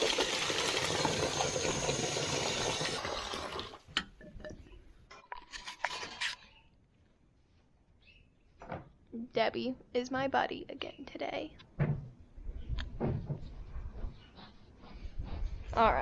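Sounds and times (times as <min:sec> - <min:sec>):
water running into trough: 0:00.0 - 0:03.9.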